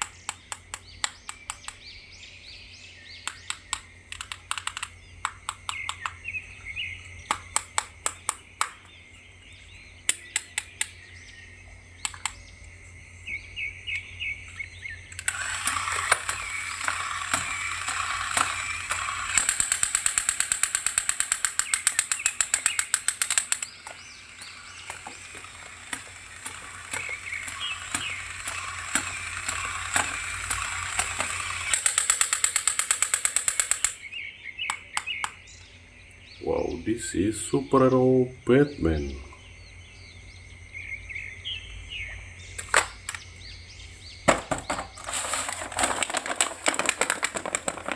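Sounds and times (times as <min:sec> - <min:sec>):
plastic packaging clicks: 0:15.1 - 0:34.0, 0:44.3 - 0:47.9
plastic packaging crackling: 0:44.7 - 0:47.9.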